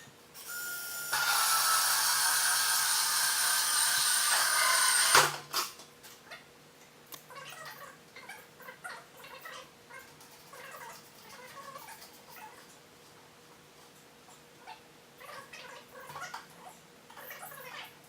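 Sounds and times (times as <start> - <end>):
power drill running: 0.4 - 5.7.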